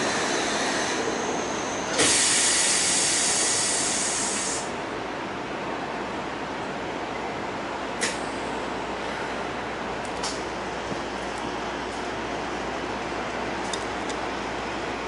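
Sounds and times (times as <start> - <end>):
loud hiss of released air: 0.0 - 4.7
subway train noise: 0.0 - 15.0.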